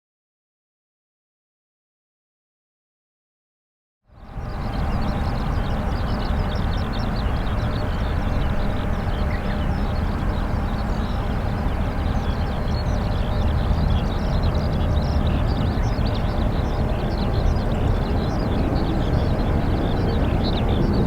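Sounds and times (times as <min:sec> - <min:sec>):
distant jet engines rumbling: 0:04.4 - 0:21.0.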